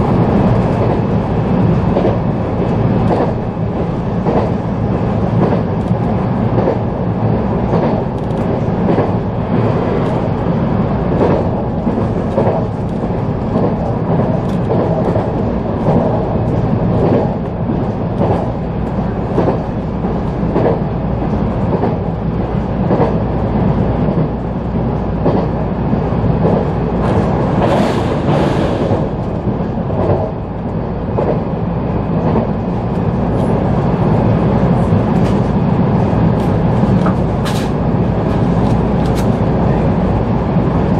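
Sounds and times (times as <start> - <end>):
train running rumble: 0.0 - 40.9
wheels clicking over rail joints: 36.4 - 39.4.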